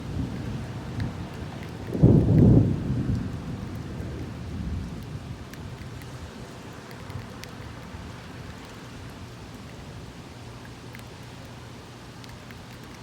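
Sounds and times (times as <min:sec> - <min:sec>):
thunder rumbling: 0:00.0 - 0:05.8
steady rain: 0:00.0 - 0:13.0.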